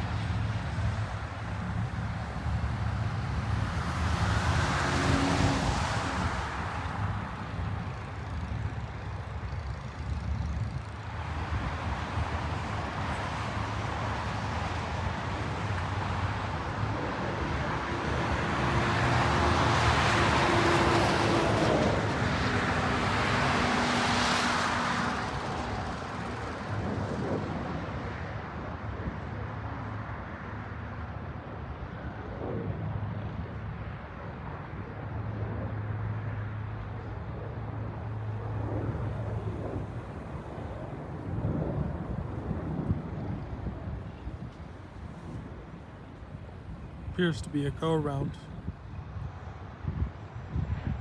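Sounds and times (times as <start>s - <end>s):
jet airliner passing: 0.0s - 51.0s.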